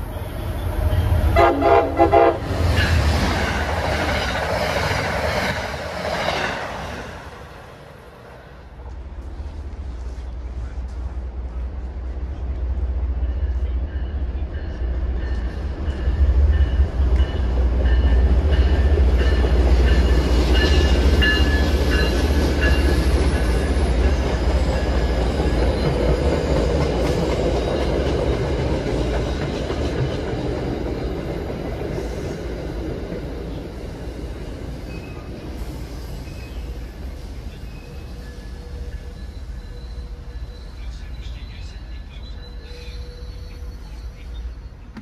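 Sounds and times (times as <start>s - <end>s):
train wheels rumbling on rail: 0.0s - 45.0s
high wheel squeals: 34.8s - 44.9s.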